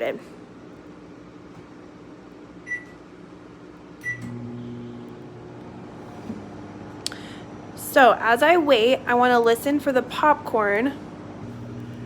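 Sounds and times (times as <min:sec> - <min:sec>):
microwave oven humming: 0:00.0 - 0:12.0
microwave keypad beeps: 0:02.6 - 0:03.0, 0:04.0 - 0:04.3.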